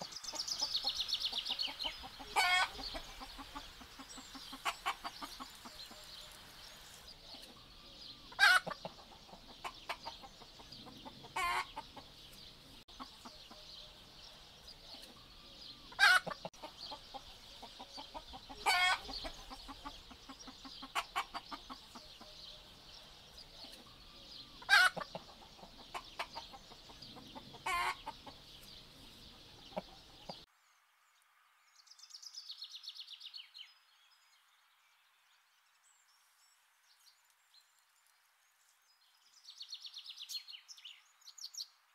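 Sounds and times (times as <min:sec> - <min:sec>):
hens clucking: 0:00.0 - 0:13.9, 0:14.8 - 0:22.7, 0:23.6 - 0:30.5
hen squawking calls: 0:01.4 - 0:06.1, 0:15.9 - 0:16.4, 0:18.1 - 0:22.3, 0:27.6 - 0:28.1.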